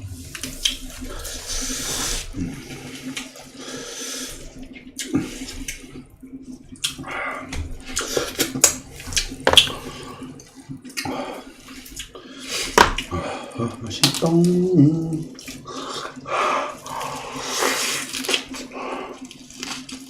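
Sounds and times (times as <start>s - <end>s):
slurping and chewing: 0.0s - 6.1s, 6.7s - 13.2s, 15.2s - 20.0s
lip smacks and mouth clicks: 6.8s - 7.0s, 17.8s - 20.0s.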